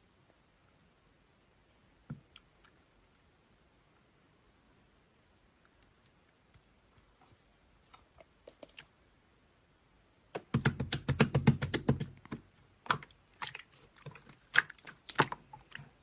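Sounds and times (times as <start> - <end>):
slime clicking and popping: 10.4 - 15.4.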